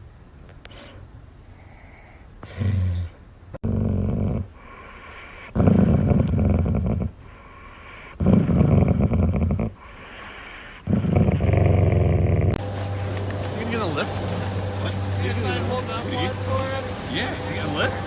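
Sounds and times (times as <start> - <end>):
dog low rumbling: 2.4 - 4.6, 5.5 - 7.2, 8.2 - 9.8, 10.8 - 18.0.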